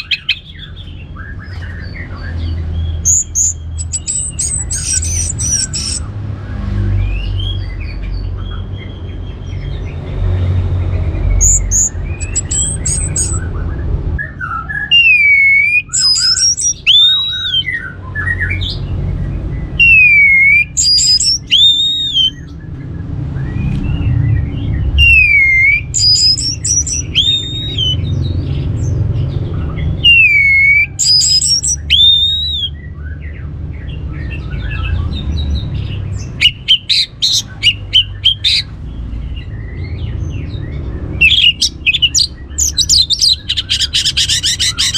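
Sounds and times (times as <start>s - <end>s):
thrush singing: 0.0s - 0.9s, 2.8s - 6.1s, 11.2s - 13.5s, 14.3s - 18.8s, 19.8s - 22.5s, 25.0s - 28.2s, 29.9s - 32.8s, 34.7s - 39.6s, 40.5s - 44.9s.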